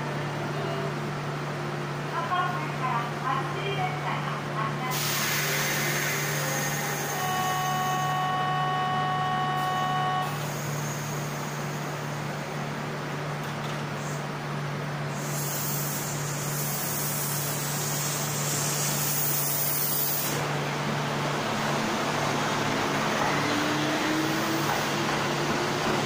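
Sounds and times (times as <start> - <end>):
air hiss: 4.9 - 7.2, 15.1 - 20.4
electric train motor whine: 5.4 - 11.9.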